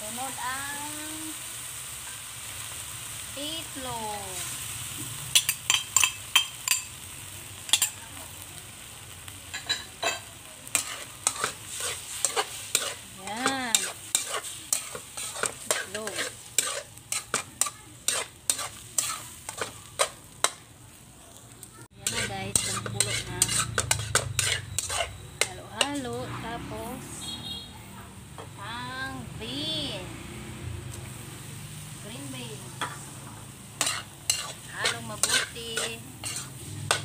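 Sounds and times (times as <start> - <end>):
food sizzling in a wok: 0.0 - 37.0
fork scraping a pan: 5.3 - 7.0, 7.7 - 8.0, 9.5 - 20.6, 22.0 - 26.1, 33.8 - 37.0.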